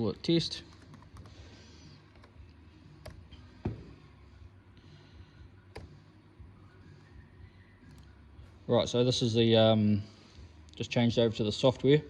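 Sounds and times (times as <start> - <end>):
knock: 3.6 - 3.9.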